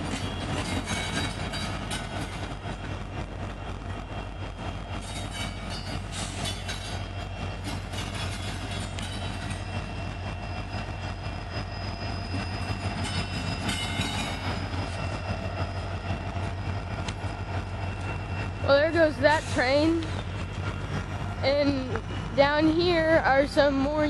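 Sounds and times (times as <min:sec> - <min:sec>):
wheels clicking over rail joints: 0:00.0 - 0:03.2, 0:05.0 - 0:10.0, 0:12.3 - 0:15.4
train wheels rumbling on rail: 0:00.0 - 0:24.0.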